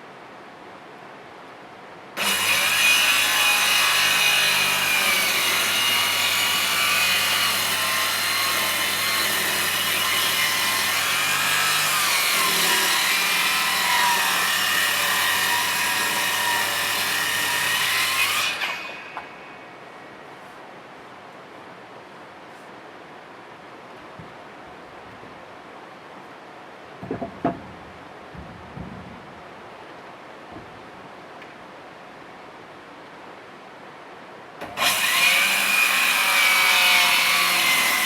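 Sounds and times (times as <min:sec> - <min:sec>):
power tool cutting: 0:02.2 - 0:19.3, 0:34.6 - 0:38.0.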